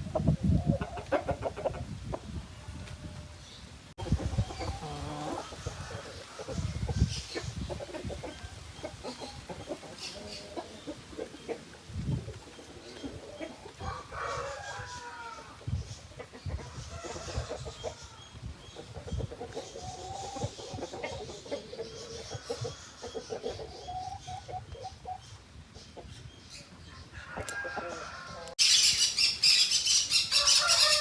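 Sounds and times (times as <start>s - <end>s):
chickens clucking: 0.0s - 31.0s
rooster crowing: 30.3s - 31.0s.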